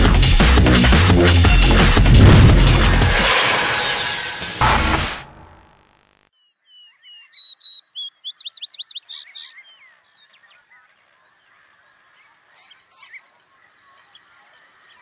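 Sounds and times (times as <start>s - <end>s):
birds singing: 6.4s - 15.0s.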